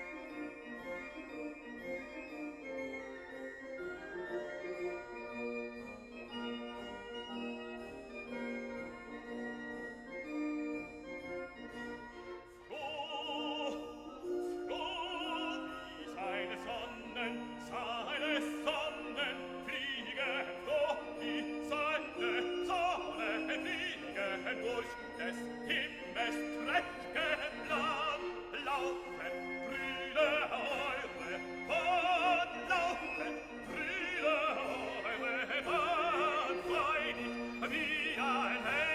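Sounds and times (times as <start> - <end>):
classical instrumental music: 0.0 - 38.9
operatic voice singing: 12.6 - 38.9.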